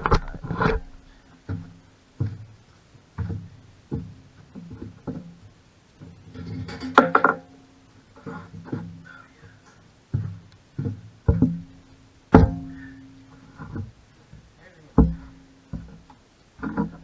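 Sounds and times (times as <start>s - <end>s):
acoustic guitar plucked notes: 11.3s - 13.4s.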